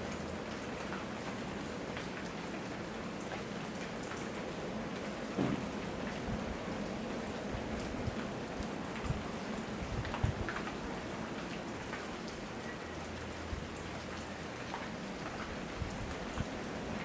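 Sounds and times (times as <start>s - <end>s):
steady rain falling: 0.0s - 17.0s
soft thumps of heavy drips: 5.0s - 17.0s.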